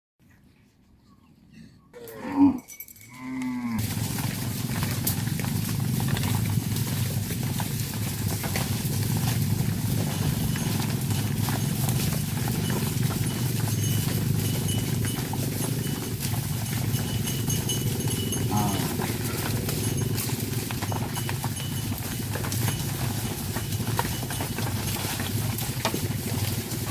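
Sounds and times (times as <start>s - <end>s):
cattle mooing: 2.0s - 26.9s.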